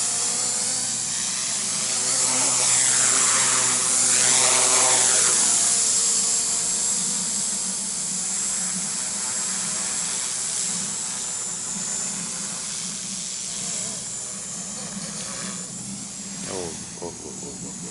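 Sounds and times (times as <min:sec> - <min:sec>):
rc helicopter motor whine: 0:00.0 - 0:17.9
rotor noise: 0:16.4 - 0:17.9.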